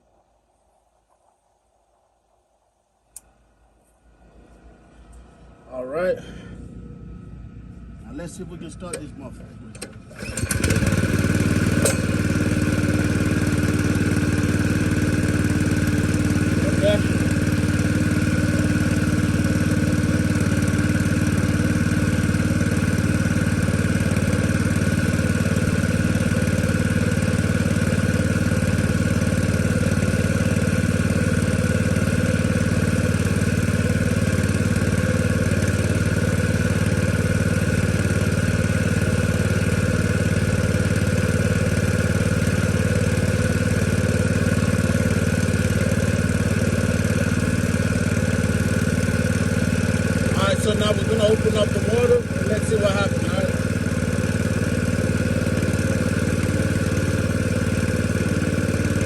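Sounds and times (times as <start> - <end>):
small petrol engine idling: 8.8 - 59.0.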